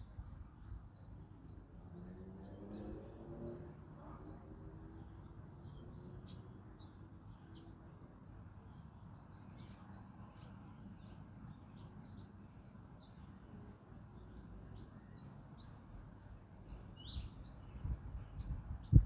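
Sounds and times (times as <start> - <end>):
songbirds chirping: 0.0 - 19.0
low wind rumble: 15.6 - 19.0.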